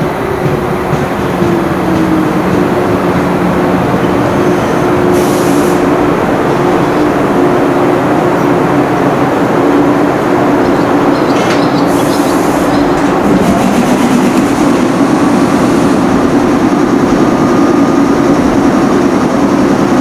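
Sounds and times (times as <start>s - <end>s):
electric train humming: 0.0s - 20.0s
air hiss release: 5.1s - 6.0s.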